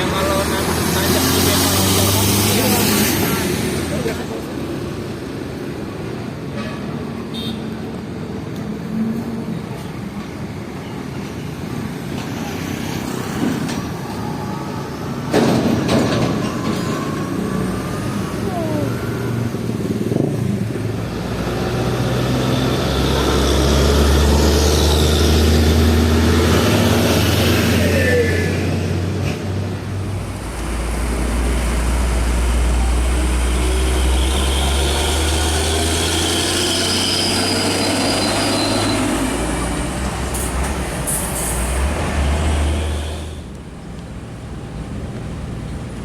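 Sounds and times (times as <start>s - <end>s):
truck engine passing close: 0.0s - 5.5s, 15.2s - 46.0s
diesel trucks in traffic: 0.0s - 46.0s.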